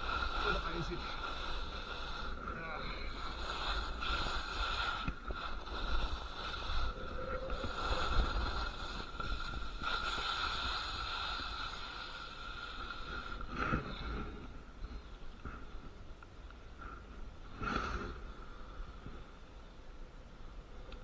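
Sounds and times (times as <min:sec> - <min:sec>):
skis scraping over icy snow: 0:00.0 - 0:14.2
wind rumbling on microphone: 0:00.0 - 0:17.5.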